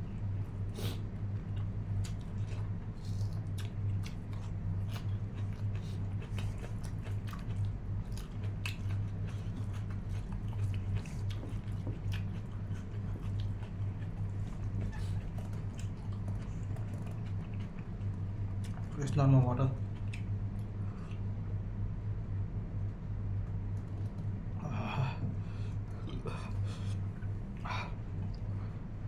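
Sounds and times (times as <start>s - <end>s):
chewing and biting food: 0.0s - 19.1s, 19.8s - 21.3s
steady low hum: 0.0s - 29.0s.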